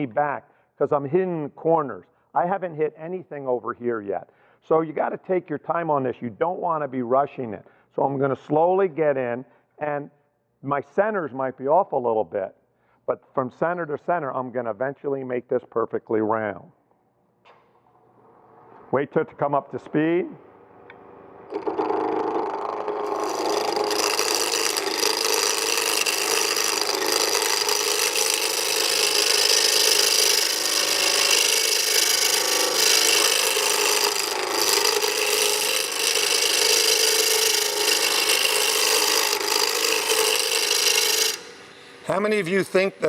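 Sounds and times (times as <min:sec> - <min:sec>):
wood lathe rasping cut: 0:21.5 - 0:43.0.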